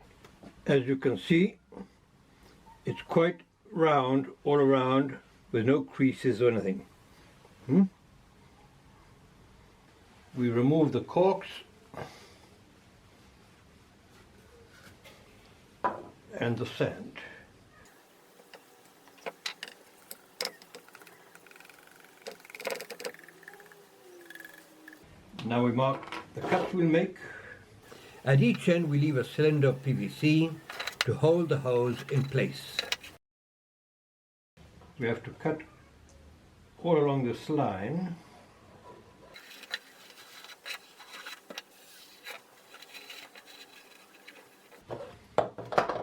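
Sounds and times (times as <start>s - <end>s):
hand tool scraping plastic pipe: 18.0s - 25.0s, 27.9s - 33.2s, 39.4s - 44.8s.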